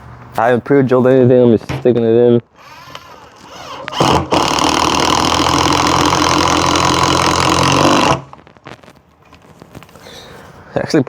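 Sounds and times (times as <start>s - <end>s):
impact driver driving screw into wood: 2.6s - 8.4s.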